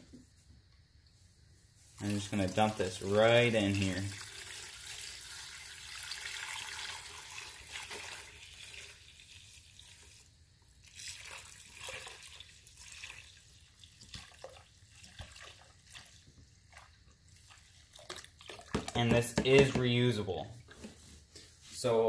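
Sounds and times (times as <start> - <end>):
liquid dripping: 2.0 - 19.0
liquid pouring stream: 2.0 - 19.0
small knocks: 18.7 - 20.0.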